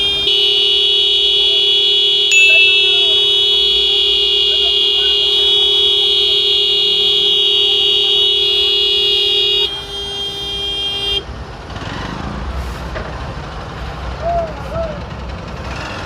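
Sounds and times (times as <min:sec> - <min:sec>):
road traffic rumble: 0:00.0 - 0:16.0
vehicle horn blast: 0:00.2 - 0:11.2.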